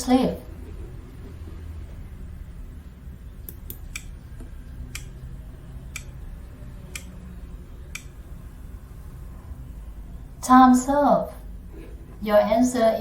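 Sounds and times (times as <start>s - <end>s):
low steady hum: 0.0s - 13.0s
clock ticks: 3.5s - 5.2s, 5.9s - 6.2s, 6.9s - 7.2s, 7.9s - 8.2s.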